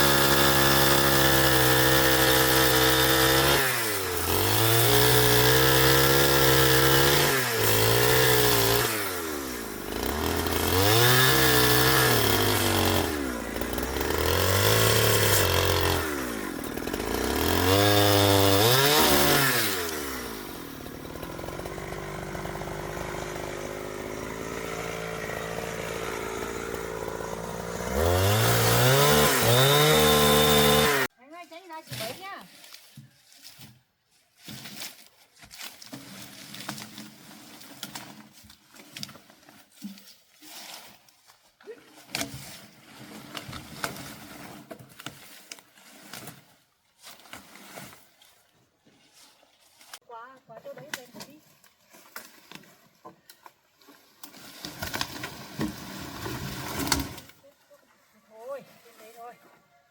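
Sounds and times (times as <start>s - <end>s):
chainsaw cutting wood: 0.0s - 31.1s, 34.5s - 41.1s, 42.0s - 48.1s, 53.9s - 57.4s.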